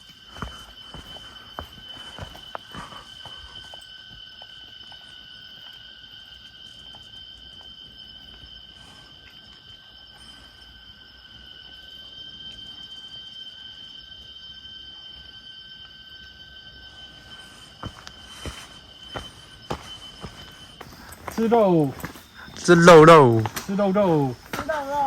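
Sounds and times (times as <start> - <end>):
cicadas droning: 0.0 - 25.0.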